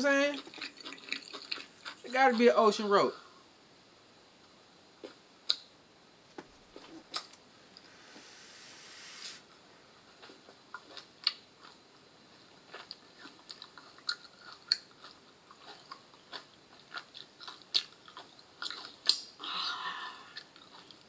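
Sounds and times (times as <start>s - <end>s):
chewing mouth clicks and smacks: 0.3s - 2.1s, 6.8s - 7.4s, 10.2s - 11.8s, 12.6s - 19.3s, 20.4s - 21.0s
breathy exhale: 7.8s - 9.5s.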